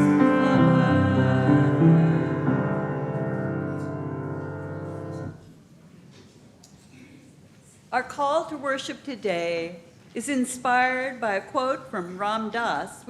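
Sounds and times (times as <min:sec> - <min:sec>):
piano music: 0:00.0 - 0:05.4.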